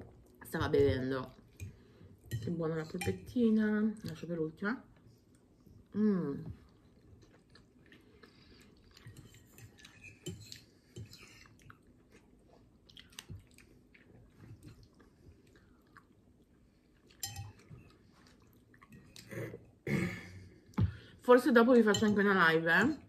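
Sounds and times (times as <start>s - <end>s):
faint chewing: 4.9s - 19.7s.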